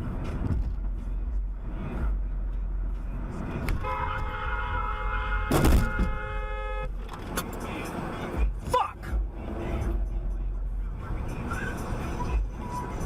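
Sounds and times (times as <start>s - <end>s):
road and engine noise: 0.0s - 13.0s
car horn honking: 3.8s - 7.2s
loud thump: 5.5s - 6.2s.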